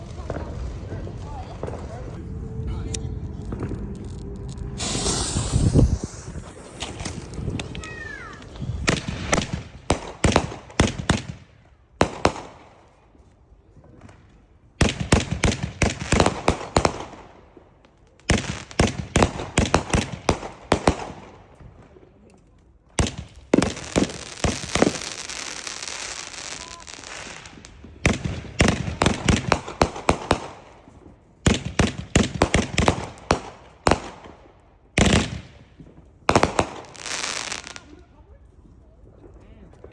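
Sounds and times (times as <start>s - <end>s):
firework hissing crackle: 0.0s - 10.9s, 23.0s - 30.7s, 36.3s - 37.9s
firework rapid sharp cracks: 4.7s - 12.8s, 14.8s - 17.5s, 18.2s - 21.5s, 23.0s - 37.9s.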